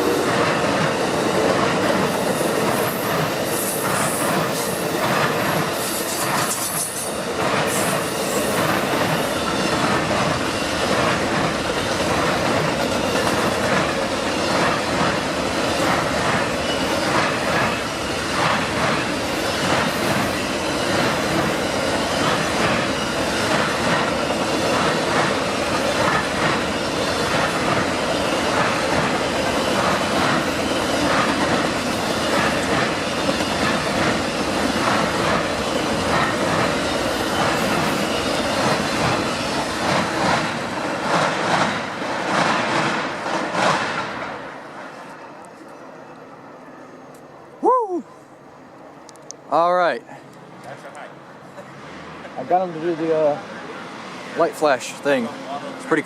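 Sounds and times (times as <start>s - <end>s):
train wheels clacking on rails: 0.0s - 44.4s.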